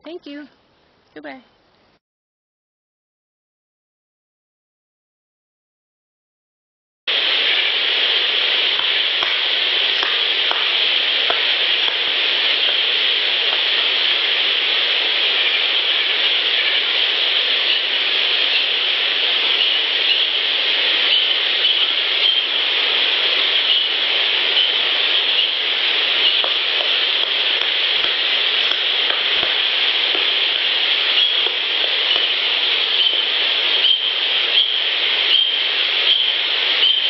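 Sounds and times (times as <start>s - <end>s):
dense crackling hiss: 0.0s - 2.0s, 7.1s - 37.0s.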